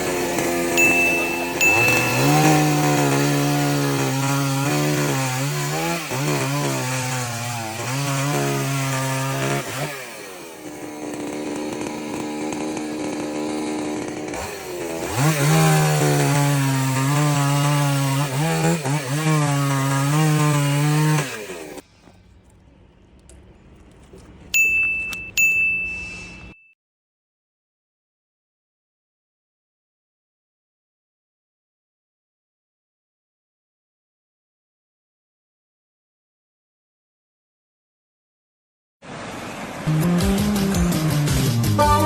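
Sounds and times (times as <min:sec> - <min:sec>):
chainsaw cutting wood: 0:00.0 - 0:21.8.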